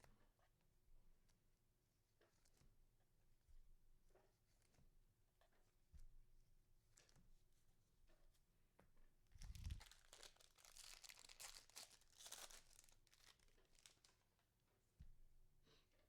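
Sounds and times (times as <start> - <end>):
foil wrapper crinkling and tearing: 9.4 - 14.2.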